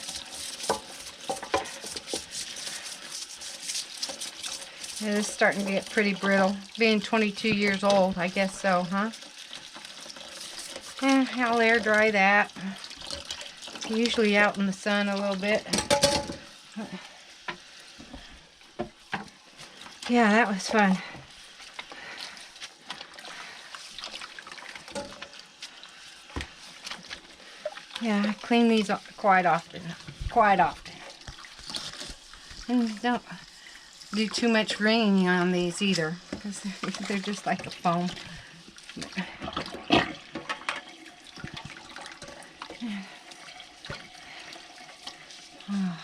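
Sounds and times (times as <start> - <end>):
water trickling and splashing: 0.0 - 46.0
knocks and handling sounds: 0.1 - 4.6, 15.7 - 16.5, 17.5 - 20.1, 24.8 - 25.4.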